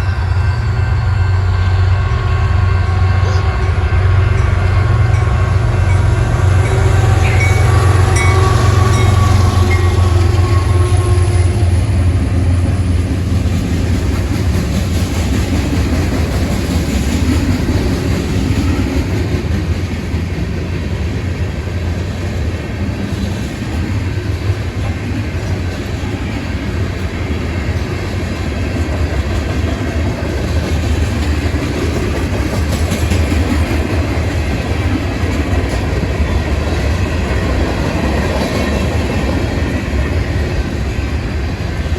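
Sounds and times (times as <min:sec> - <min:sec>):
pitched tone: 0:00.0 - 0:11.5
train wheels clattering on rails: 0:04.4 - 0:41.9.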